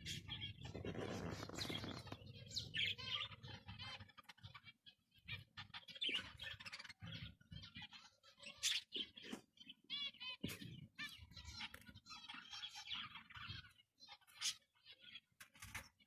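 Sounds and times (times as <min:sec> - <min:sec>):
finches chirping: 0:00.0 - 0:16.0
rustling: 0:00.6 - 0:02.3.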